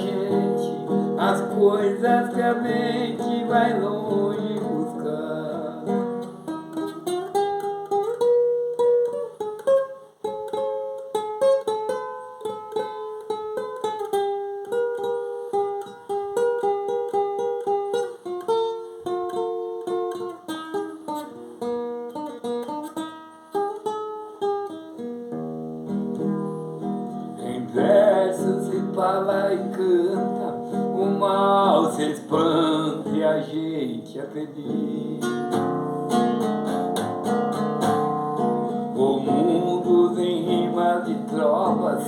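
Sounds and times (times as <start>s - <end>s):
person singing: 0.0s - 6.9s, 27.2s - 42.0s
plucked guitar melody: 0.0s - 42.0s.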